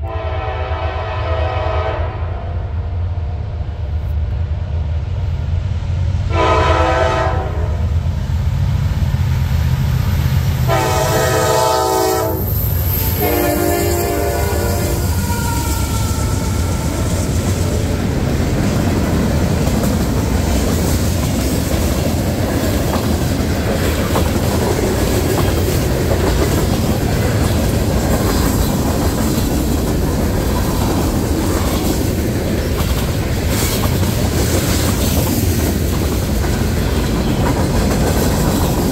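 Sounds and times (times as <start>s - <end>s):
locomotive horn: 0.0s - 2.6s, 6.3s - 7.9s, 10.7s - 17.3s
locomotive engine rumble: 2.8s - 38.9s
train wheels clicking over rail joints: 12.4s - 38.9s.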